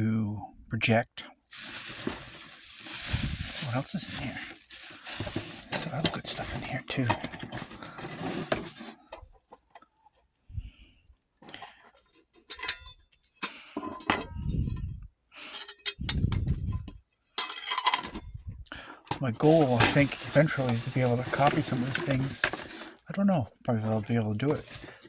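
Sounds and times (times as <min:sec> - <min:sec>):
muffled low handling rumbles: 0:16.0 - 0:17.0.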